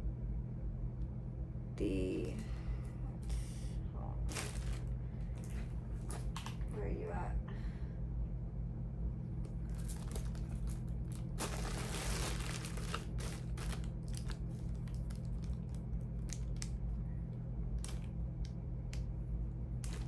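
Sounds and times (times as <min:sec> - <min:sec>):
steady low hum: 0:00.0 - 0:20.0
bag rustling and crinkling: 0:04.3 - 0:06.6, 0:09.6 - 0:16.6.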